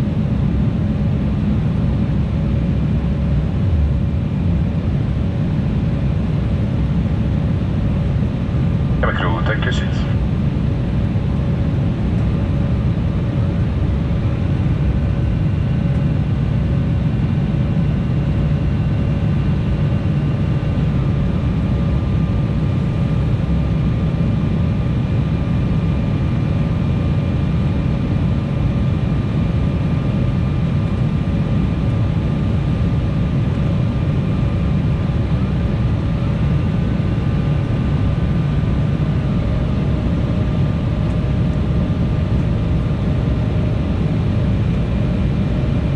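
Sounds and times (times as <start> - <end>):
jet engine whine: 0.0 - 45.9
airplane cabin rumble: 4.9 - 15.2.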